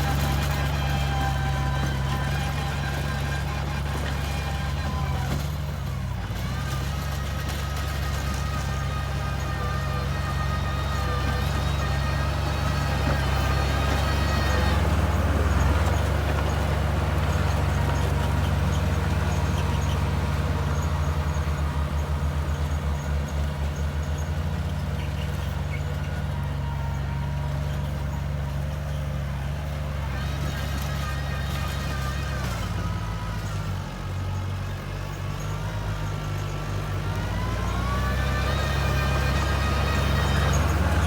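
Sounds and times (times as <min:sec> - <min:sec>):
bulldozer diesel engine rumbling: 0:00.0 - 0:41.0.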